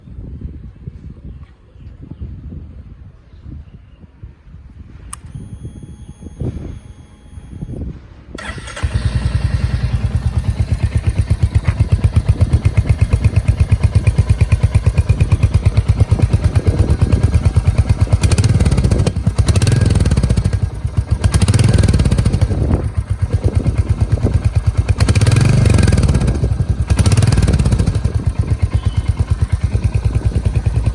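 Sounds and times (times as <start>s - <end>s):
motorcycle engine starting: 5.1s - 7.8s, 8.4s - 30.9s
motorcycle engine idling: 8.4s - 30.9s
motorcycle engine revving: 8.4s - 30.9s.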